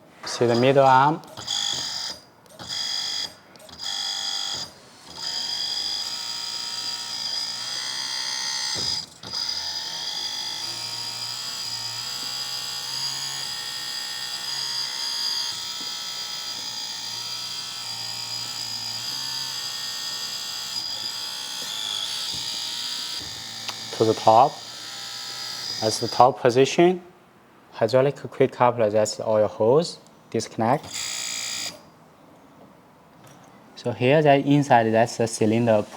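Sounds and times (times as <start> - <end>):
hydraulic pump whining: 0.0 - 26.4, 30.8 - 31.9.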